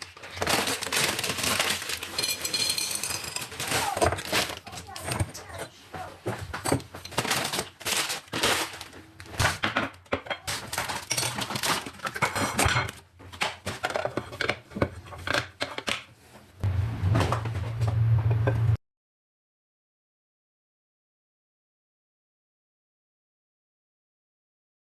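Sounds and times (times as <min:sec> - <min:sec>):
dishes and pots clattering: 0:00.0 - 0:16.1
steady low hum: 0:16.6 - 0:18.8.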